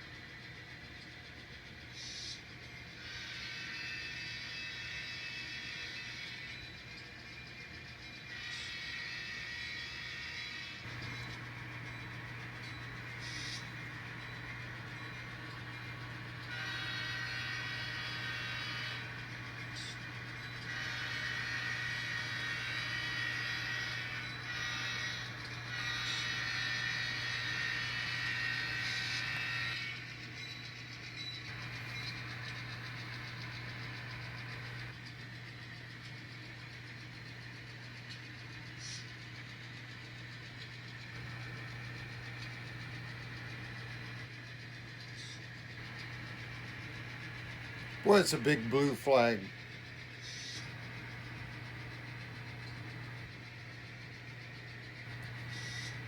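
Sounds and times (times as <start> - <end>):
high-pitched train sound: 0.0 - 6.9, 8.2 - 34.9, 47.9 - 49.6
model train humming: 0.0 - 56.0.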